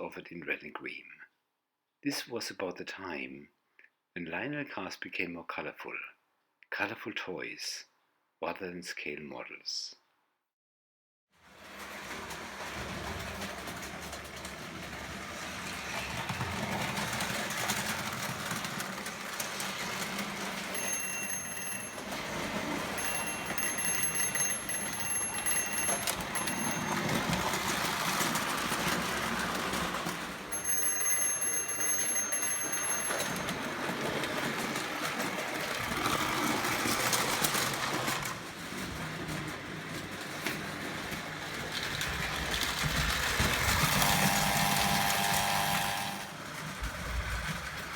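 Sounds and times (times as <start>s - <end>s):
toy train rolling on track: 11.4s - 47.9s
high ringing tone: 20.8s - 27.6s, 30.5s - 33.5s.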